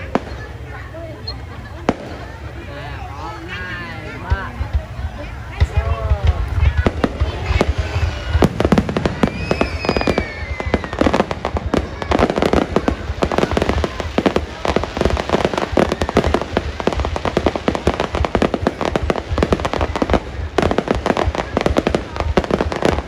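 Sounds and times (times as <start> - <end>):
fireworks bangs and crackles: 0.0 - 23.0
falling firework whistle: 7.6 - 13.8.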